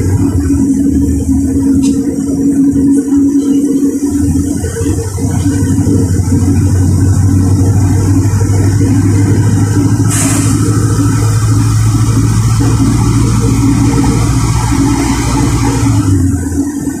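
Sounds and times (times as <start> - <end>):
bus diesel engine drone: 0.0 - 17.0
short sharp hiss: 10.1 - 10.6.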